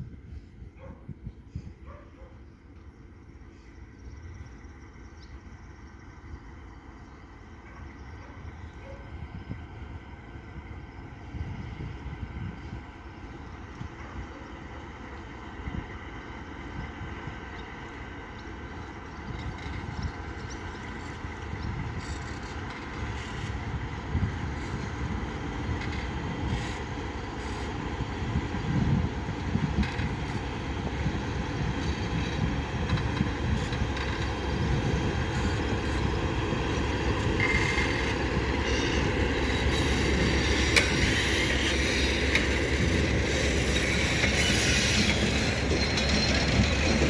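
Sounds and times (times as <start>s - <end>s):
freight train wheels rumbling: 0.0s - 47.0s
high wheel squeal: 31.8s - 47.0s.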